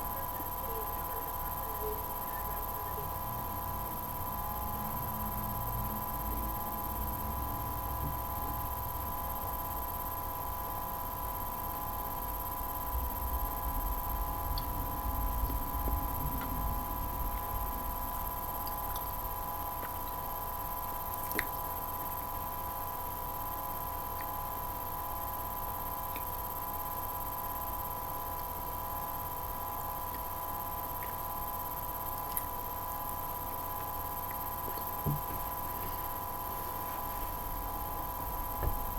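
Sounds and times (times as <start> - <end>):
electrical hum: 0.0 - 38.9.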